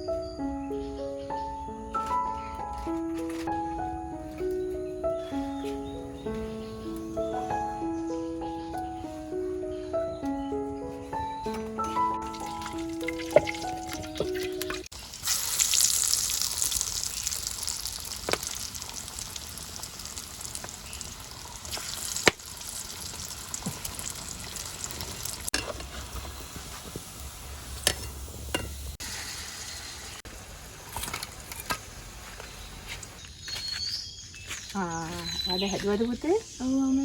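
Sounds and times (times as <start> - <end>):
fritters deep-frying in hot oil: 14.5 - 33.2
sharp oil pops: 18.2 - 18.5.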